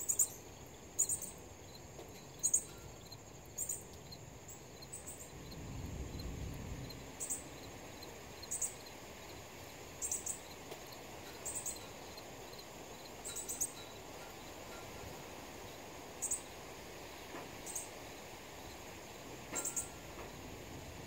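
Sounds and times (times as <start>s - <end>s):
high-pitched insect trill: 0.0s - 16.6s, 17.6s - 18.0s, 19.6s - 20.2s.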